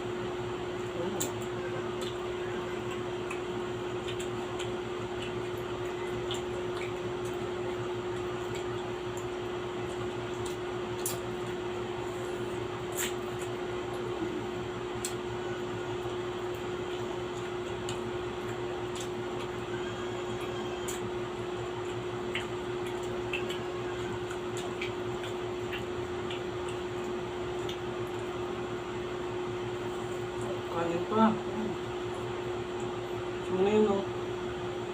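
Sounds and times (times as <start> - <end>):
steady mechanical hum: 0.0 - 34.9
eating and utensil clicks: 0.8 - 11.7, 12.8 - 14.1, 15.0 - 15.3, 16.0 - 28.6.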